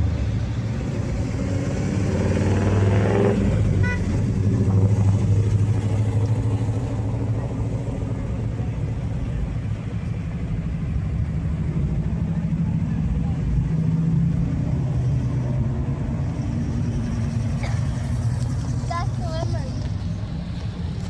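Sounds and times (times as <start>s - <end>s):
engine revving: 0.0s - 8.1s
car engine rumbling: 0.0s - 21.0s.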